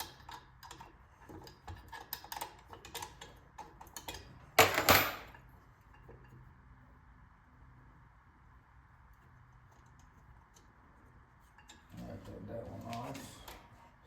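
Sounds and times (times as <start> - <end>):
metal tools clicking and clinking: 0.0 - 5.4.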